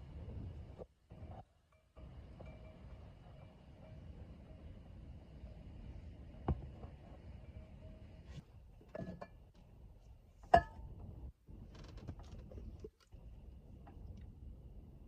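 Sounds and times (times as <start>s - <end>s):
low background rumble: 0.0s - 15.0s
ringing clink: 1.7s - 4.8s.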